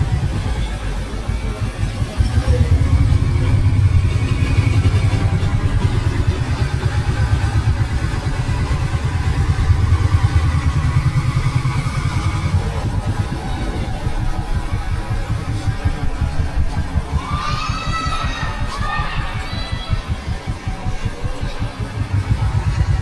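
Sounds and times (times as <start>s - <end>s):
motorcycle engine rumble: 0.0s - 23.0s.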